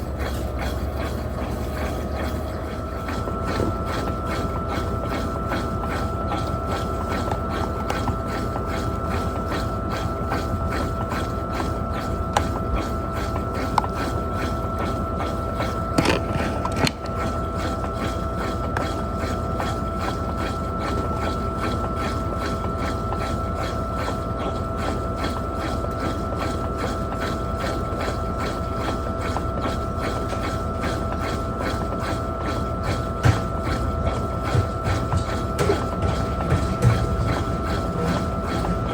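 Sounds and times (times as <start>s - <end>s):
washing machine clatter: 0.0s - 38.9s
washing machine whine: 0.0s - 38.9s
washing machine knock: 32.8s - 38.9s.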